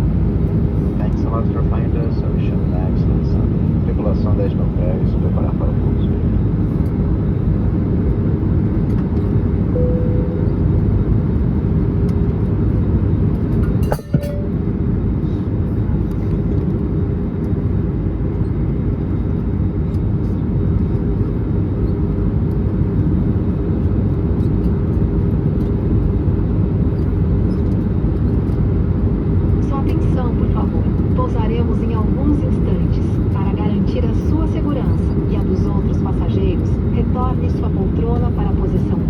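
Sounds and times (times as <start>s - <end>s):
airplane cabin airflow and engine hum: 0.0s - 39.0s
faint steady tone: 9.7s - 10.6s.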